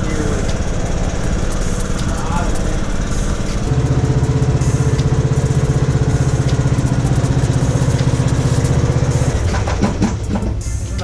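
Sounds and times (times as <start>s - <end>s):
riding lawn mower engine running: 0.0s - 11.0s.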